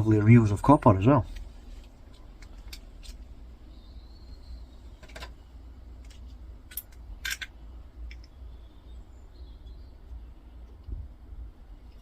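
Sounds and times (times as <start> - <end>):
steady low hum: 0.0 - 12.0
meter parts clicking and knocking: 5.0 - 5.4, 6.0 - 8.4.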